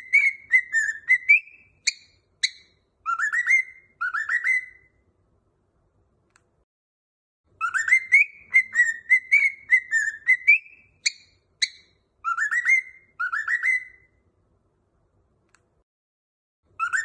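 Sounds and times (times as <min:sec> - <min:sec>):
whistled tune: 0:00.0 - 0:04.9, 0:07.6 - 0:14.1, 0:16.8 - 0:17.0.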